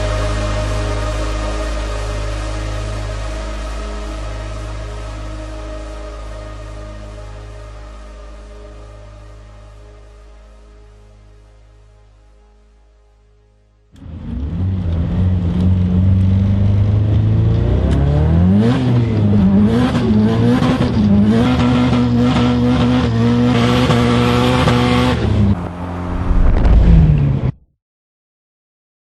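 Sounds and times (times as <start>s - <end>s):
car engine revving: 14.0s - 27.6s.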